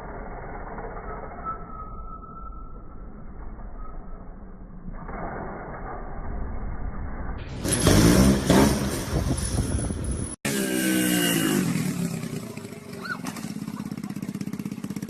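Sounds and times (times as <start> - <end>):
engine slowing down: 6.4 - 15.0
motorcycle engine revving: 7.5 - 15.0.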